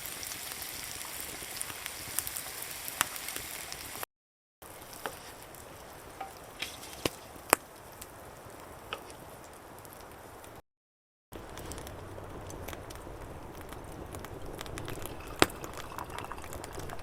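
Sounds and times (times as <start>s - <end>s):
food sizzling in a pan: 0.0s - 7.6s
campfire crackles and pops: 0.0s - 10.6s, 11.4s - 17.0s.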